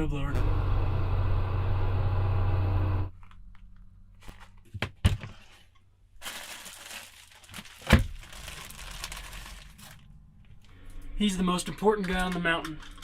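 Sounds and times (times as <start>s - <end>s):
snowblower engine running: 0.4s - 3.1s
sharp cracks and crunches: 6.2s - 10.1s.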